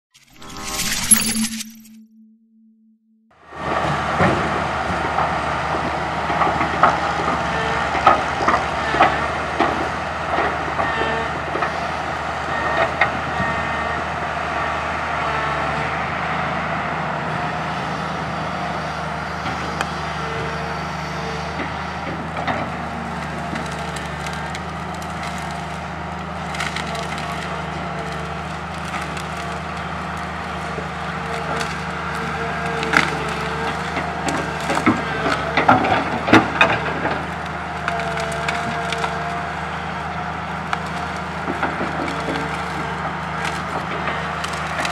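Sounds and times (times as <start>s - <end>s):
excavator diesel engine running: 3.4s - 44.9s
wood cracking and snapping: 22.7s - 44.9s.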